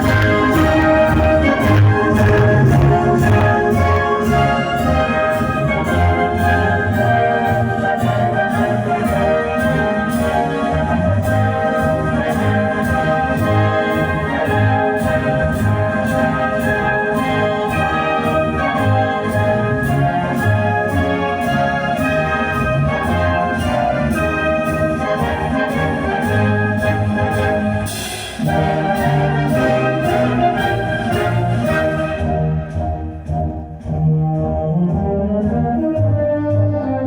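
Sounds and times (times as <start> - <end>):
heavy bass pulsing: 0.0 - 6.0.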